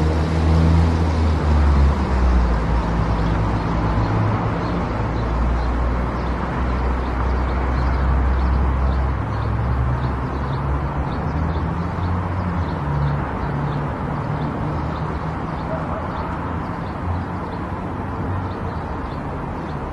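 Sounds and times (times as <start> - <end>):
car tyre and engine noise: 0.0 - 19.9.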